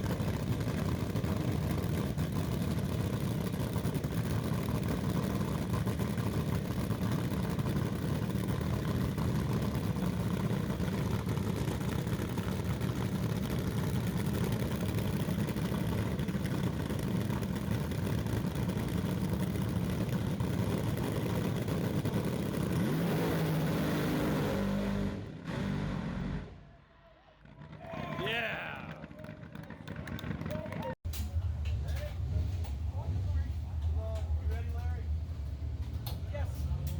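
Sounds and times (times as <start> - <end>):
drag car engine running hard: 0.0 - 26.5.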